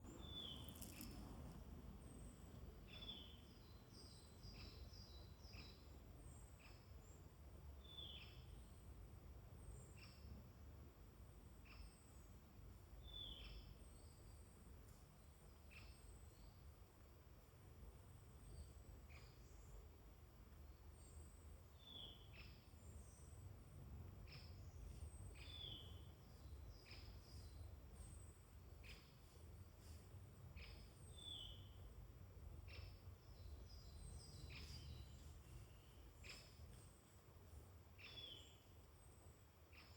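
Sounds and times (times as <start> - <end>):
low steady rumble: 0.0 - 5.0
small birds calling: 0.1 - 8.6, 24.2 - 32.0, 32.6 - 39.9
songbirds chirping and whistling: 30.6 - 31.8, 32.7 - 37.0, 38.0 - 39.1.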